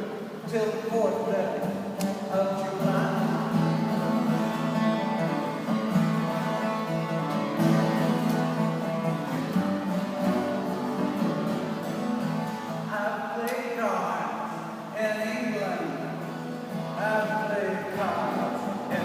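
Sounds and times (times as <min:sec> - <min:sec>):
acoustic guitar strumming: 0:00.0 - 0:19.0
person singing folk song: 0:02.1 - 0:05.9, 0:16.7 - 0:19.0.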